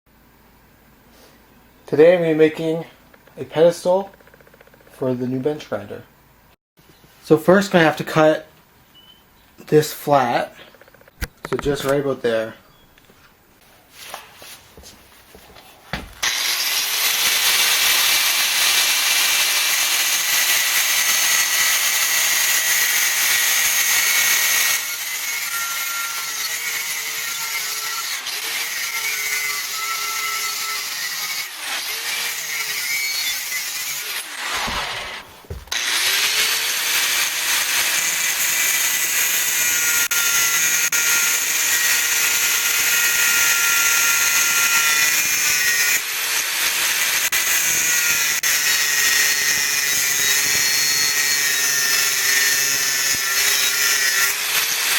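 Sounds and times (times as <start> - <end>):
angle grinder cutting steel: 16.2 - 54.9.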